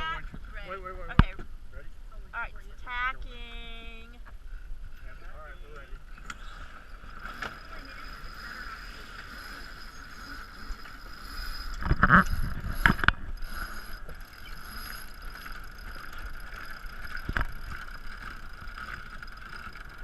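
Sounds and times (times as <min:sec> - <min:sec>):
wind: 0:00.0 - 0:20.0
water noise: 0:04.4 - 0:20.0.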